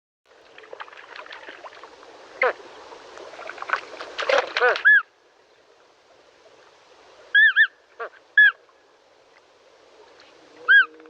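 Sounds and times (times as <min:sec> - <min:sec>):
flamingo honking calls: 0:02.4 - 0:02.6, 0:04.5 - 0:05.1, 0:07.3 - 0:08.6, 0:10.6 - 0:11.0.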